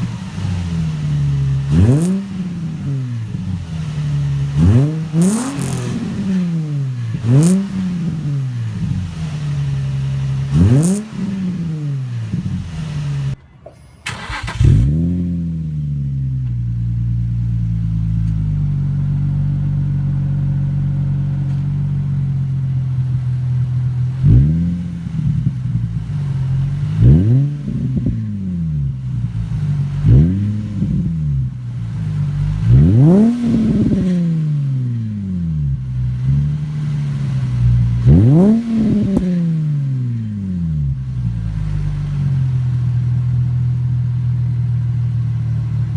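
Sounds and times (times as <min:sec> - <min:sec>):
car engine revving and idling: 0:00.0 - 0:45.9.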